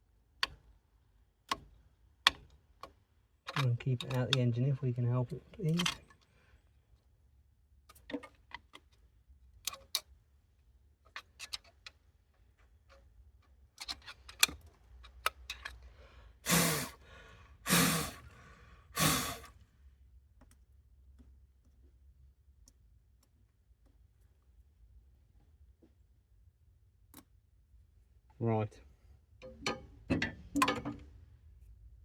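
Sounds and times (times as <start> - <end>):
breathy blows: 16.4 - 19.5.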